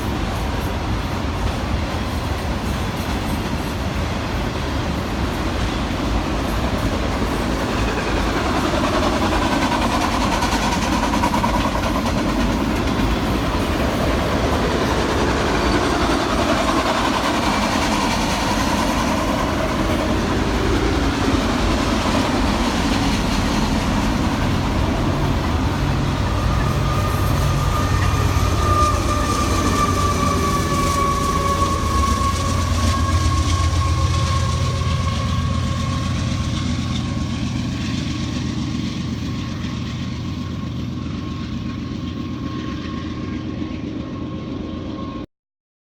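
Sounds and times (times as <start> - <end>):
train wheels rumbling on rails: 0.0 - 45.3
steady high-pitched tone: 11.4 - 37.7.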